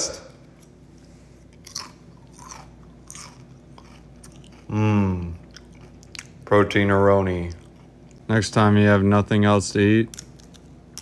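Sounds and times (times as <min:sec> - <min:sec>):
crunchy chips being chewed: 0:01.4 - 0:06.4, 0:07.3 - 0:08.3, 0:10.1 - 0:11.0
person humming: 0:04.7 - 0:05.4.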